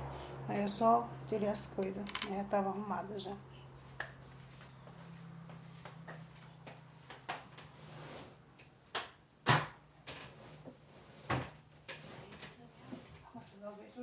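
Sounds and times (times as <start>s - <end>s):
cupboard doors and drawers shutting: 9.4s - 13.2s.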